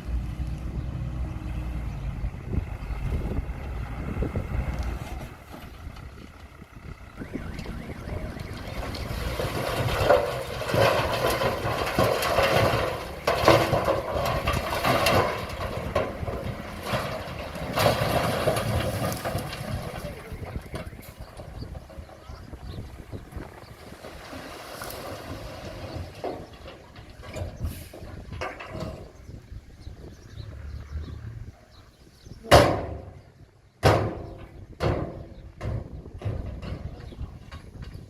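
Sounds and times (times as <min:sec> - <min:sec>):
bulldozer diesel engine rumbling: 0:00.0 - 0:38.0
rattling with sharp knocks: 0:08.7 - 0:22.9, 0:32.5 - 0:38.0.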